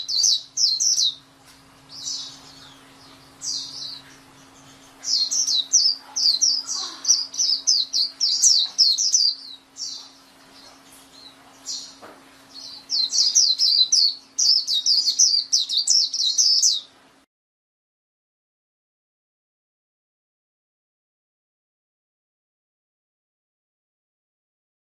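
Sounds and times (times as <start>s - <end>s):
bird chirping song: 0.0s - 17.2s
faint steady hum: 0.0s - 17.3s.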